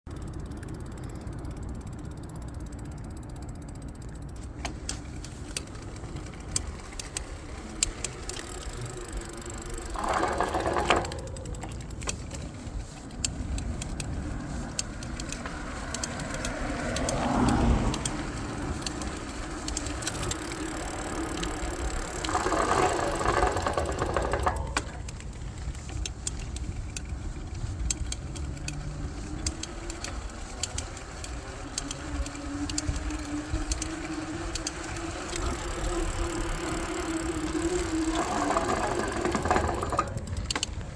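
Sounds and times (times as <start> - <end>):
disc brakes pinging: 0.1 - 40.9.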